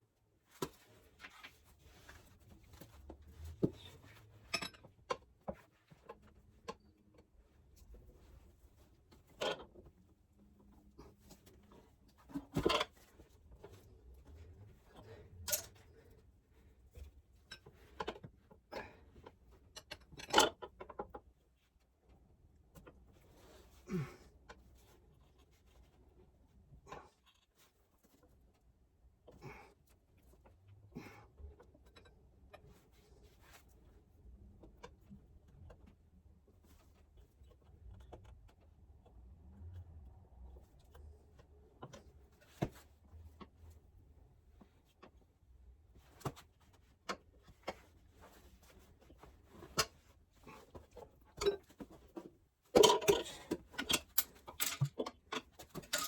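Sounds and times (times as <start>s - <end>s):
tools clicking and knocking: 52.8s - 56.0s.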